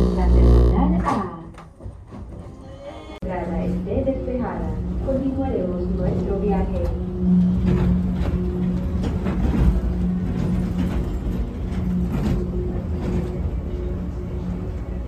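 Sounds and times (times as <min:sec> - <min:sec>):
electric motor hum: 0:00.0 - 0:01.0
train low rumble: 0:00.0 - 0:02.6, 0:03.2 - 0:15.0.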